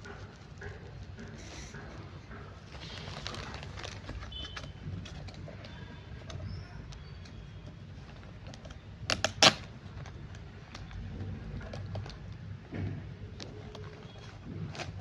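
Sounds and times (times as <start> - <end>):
hands handling a package: 2.7 - 10.9.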